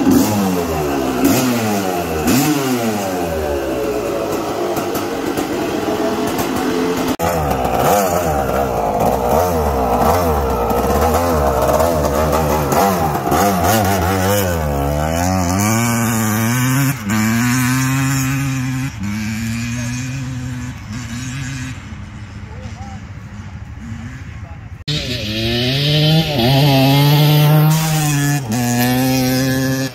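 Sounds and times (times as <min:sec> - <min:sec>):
two-stroke engine revving: 0:00.0 - 0:22.2, 0:23.8 - 0:29.9.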